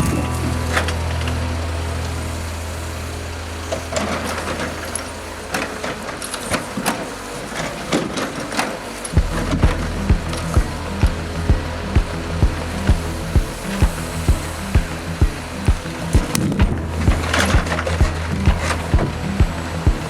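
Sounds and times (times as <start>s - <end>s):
diesel truck engine running: 0.0s - 20.0s
low thumps: 9.2s - 20.0s.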